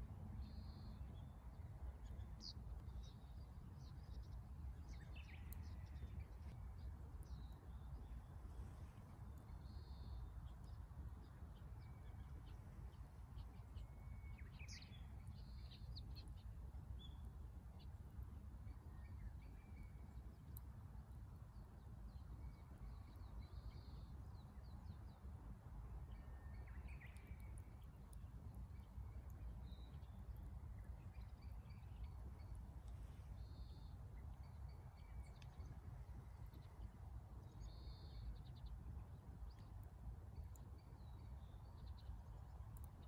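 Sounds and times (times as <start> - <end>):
faint bird chirps and calls: 26.0 - 43.0.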